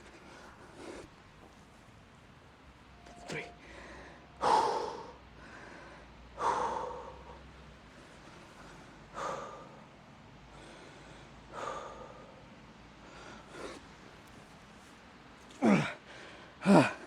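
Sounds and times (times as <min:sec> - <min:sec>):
man breathing hard: 0:03.3 - 0:14.0, 0:15.1 - 0:17.0.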